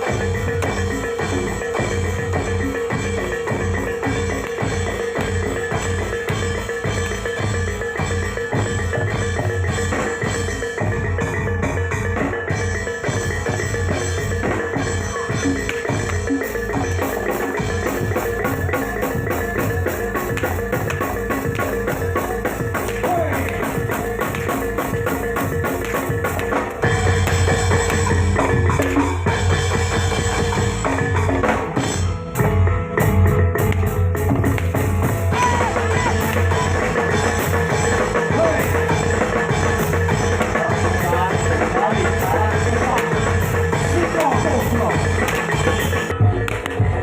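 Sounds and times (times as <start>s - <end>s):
tuned percussion: 0.0s - 31.2s
drums: 0.0s - 47.0s.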